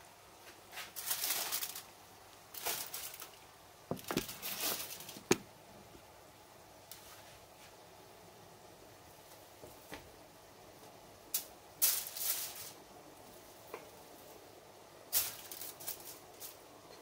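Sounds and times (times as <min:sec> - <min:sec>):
rustling and scraping of bananas: 0:00.4 - 0:05.4, 0:06.9 - 0:07.9, 0:11.4 - 0:14.4, 0:15.1 - 0:17.0.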